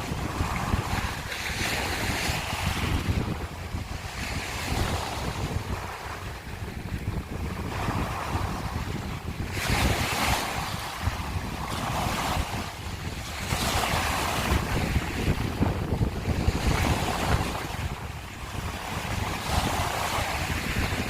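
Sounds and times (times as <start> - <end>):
waves washing over shells: 0.0 - 21.0
wind buffeting microphone: 0.0 - 21.0.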